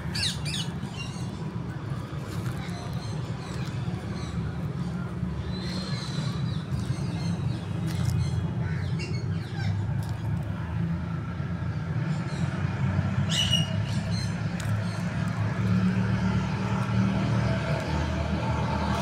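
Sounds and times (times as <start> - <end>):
birds chirping: 0.0 - 10.3, 12.1 - 19.0.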